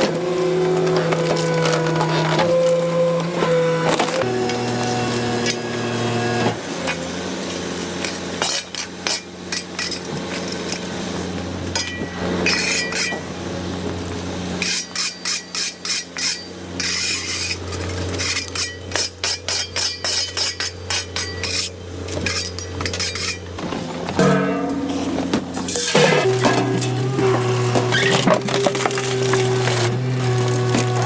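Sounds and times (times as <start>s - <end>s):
garbage truck compactor: 0.0s - 31.0s
rubbish cracking and snapping: 25.6s - 31.0s.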